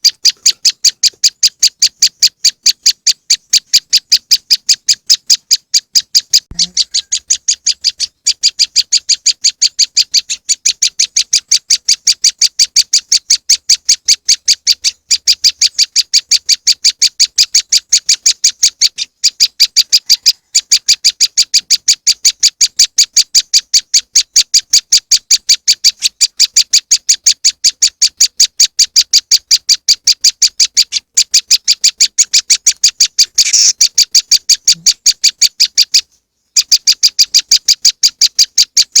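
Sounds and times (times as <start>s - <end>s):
sharp high chipping bird notes: 28.9s - 36.0s.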